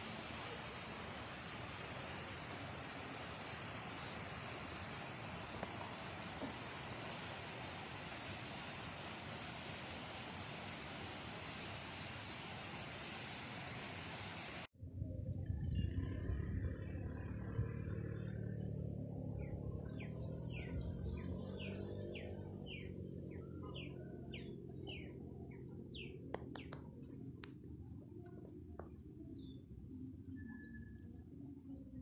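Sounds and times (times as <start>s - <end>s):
steady low rumble: 14.8s - 21.2s
faint high bird chirps: 27.8s - 32.0s.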